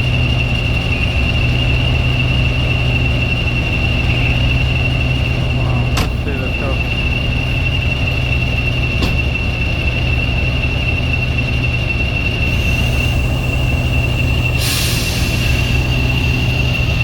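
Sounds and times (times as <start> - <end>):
high-pitched wheel squeal: 0.0 - 17.0
train rumbling: 0.0 - 17.0
burst of hiss: 14.4 - 16.6.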